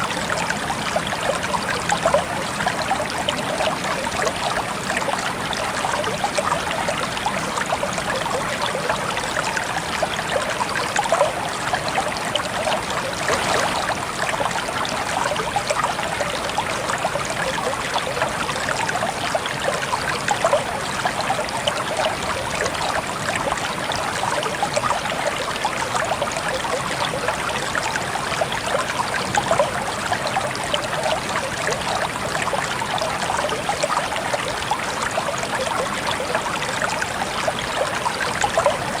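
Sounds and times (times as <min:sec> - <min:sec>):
water trickling: 0:00.0 - 0:39.0.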